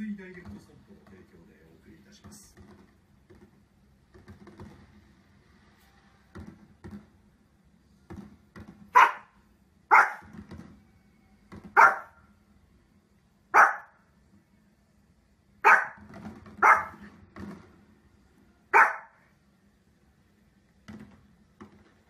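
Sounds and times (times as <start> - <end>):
small dog barking sharply: 8.9 - 10.3, 11.8 - 12.2, 13.6 - 13.9, 15.6 - 16.0, 16.6 - 17.0, 18.7 - 19.2.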